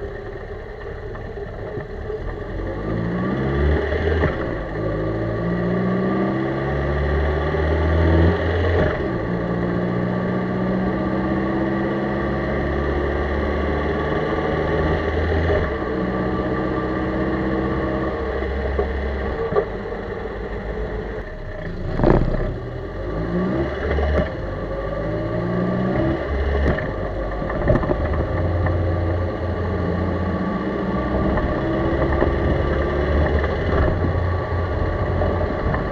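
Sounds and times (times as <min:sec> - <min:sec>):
car engine running: 0:00.0 - 0:35.9.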